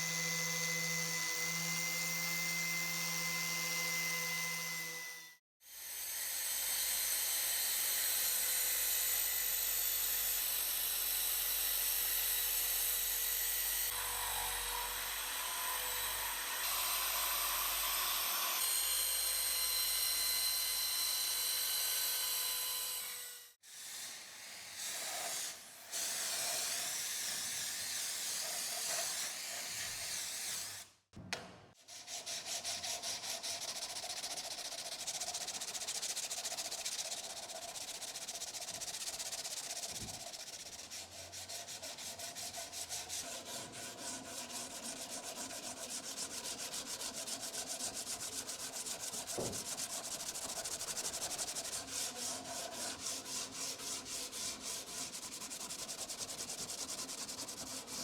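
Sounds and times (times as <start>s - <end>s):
rubbing strokes on metal: 31.8s - 58.0s.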